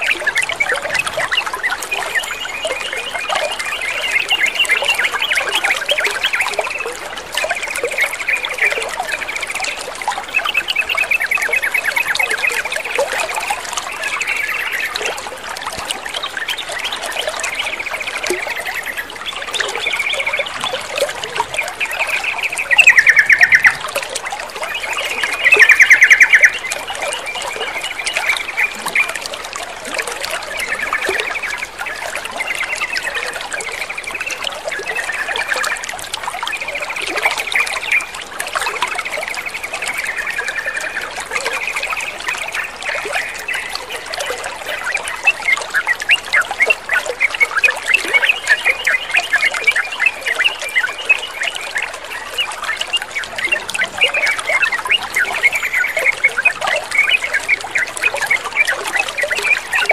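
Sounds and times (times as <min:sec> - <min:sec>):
water trickling: 0:00.0 - 0:59.9
birds chattering and calling: 0:16.0 - 0:29.1.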